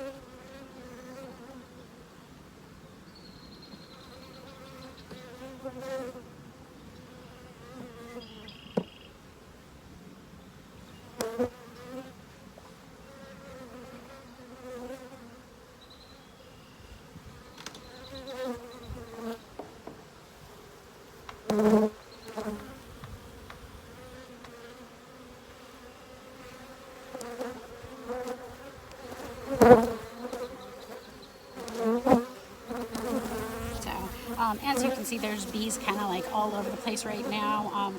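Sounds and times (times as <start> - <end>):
bees buzzing: 25.5 - 37.9.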